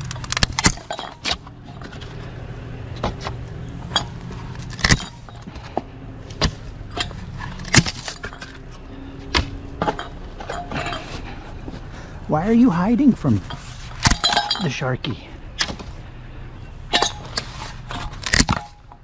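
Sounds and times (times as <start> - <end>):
plastic and metal items clattering: 0.0 - 11.8, 16.9 - 19.0
low engine hum: 0.0 - 19.0.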